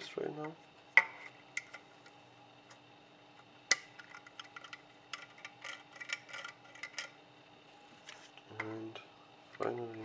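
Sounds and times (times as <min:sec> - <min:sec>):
plastic parts clicking and rattling: 0:04.0 - 0:07.1.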